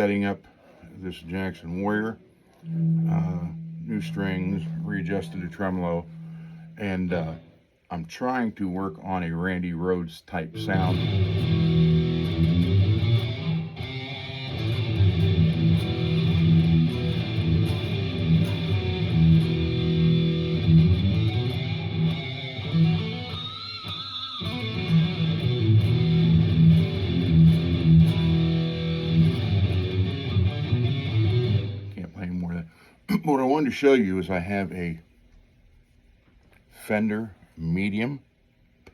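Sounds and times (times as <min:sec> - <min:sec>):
heavy metal electric guitar: 0:10.6 - 0:32.0.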